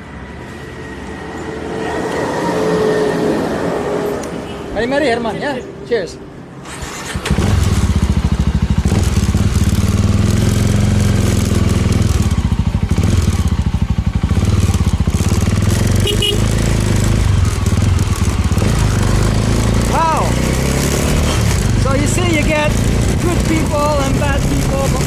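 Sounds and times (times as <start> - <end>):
motorcycle engine running: 7.2 - 25.0.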